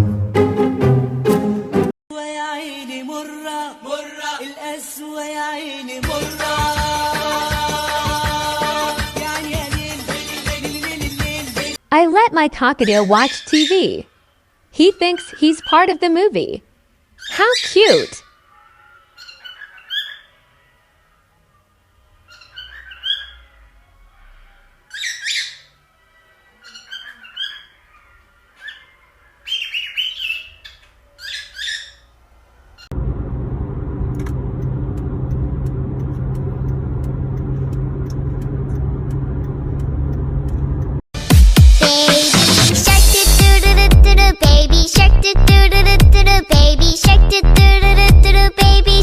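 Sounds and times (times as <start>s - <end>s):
steady bass-heavy sound: 32.9s - 41.7s, 42.4s - 49.0s.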